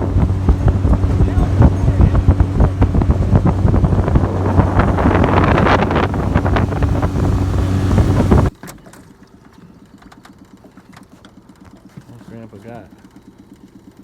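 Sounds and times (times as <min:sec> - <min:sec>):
wind buffeting microphone: 0:00.0 - 0:08.5
water noise: 0:00.0 - 0:09.4
outboard motor running: 0:00.0 - 0:14.0.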